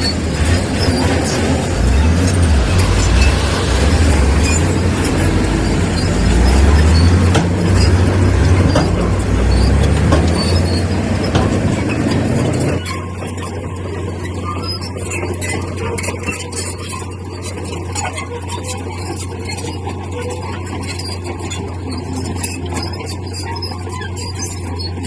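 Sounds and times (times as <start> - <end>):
metal clanks: 0.0 - 13.8
diesel earthmoving machinery running: 0.0 - 25.0
machinery squeal: 0.0 - 25.0.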